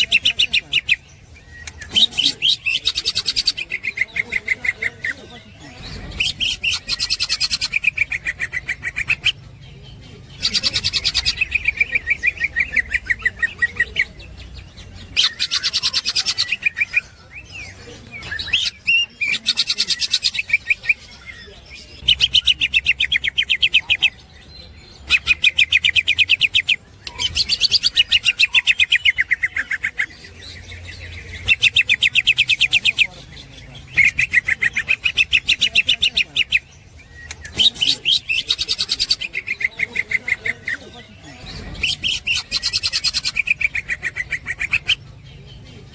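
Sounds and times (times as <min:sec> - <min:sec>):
bird chattering song: 0:00.0 - 0:45.9.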